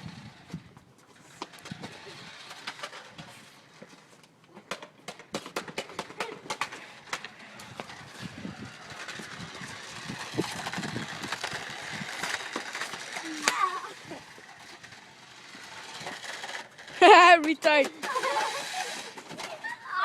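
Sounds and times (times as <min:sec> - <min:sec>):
toy car clicks and rattles: 0:00.0 - 0:03.7, 0:04.7 - 0:20.0
toy car running noise: 0:00.0 - 0:20.0.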